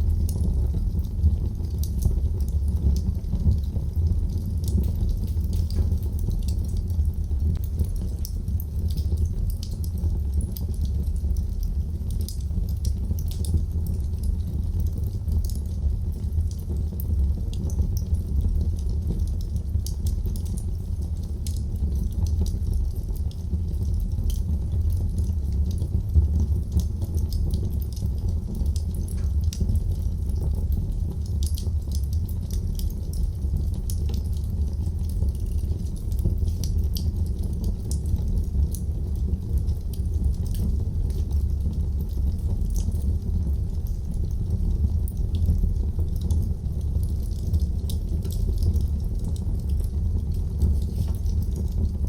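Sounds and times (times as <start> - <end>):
burning wood crackling and popping: 0.0 - 52.0
low rumble of flames: 0.0 - 52.0.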